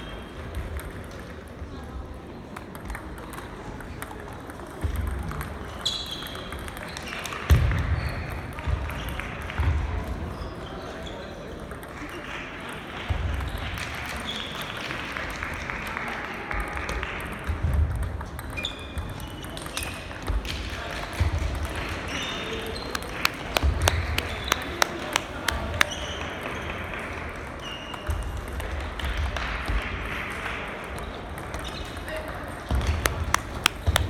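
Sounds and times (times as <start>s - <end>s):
background chatter: 21.0s - 26.4s, 32.0s - 34.0s
table tennis balls clicking: 22.8s - 26.0s, 33.0s - 34.0s.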